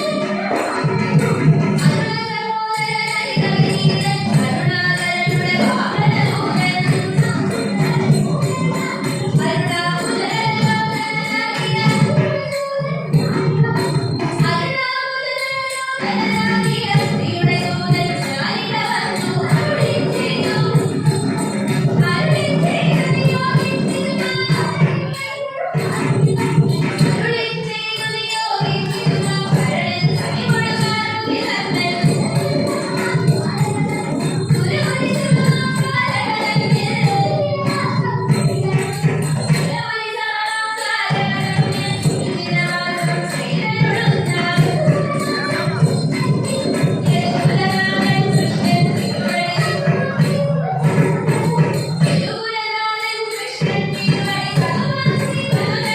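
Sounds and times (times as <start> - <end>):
person singing: 0.0 - 1.2
drum beat: 0.0 - 2.3, 3.2 - 14.7, 16.0 - 39.8, 41.1 - 52.3
jingling hand cymbals: 0.0 - 55.9.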